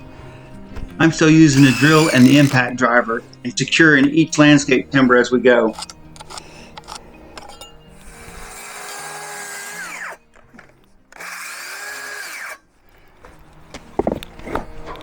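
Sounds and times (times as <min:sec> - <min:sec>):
cordless drill driving screws: 0:01.5 - 0:02.7, 0:05.7 - 0:10.2, 0:11.1 - 0:12.6.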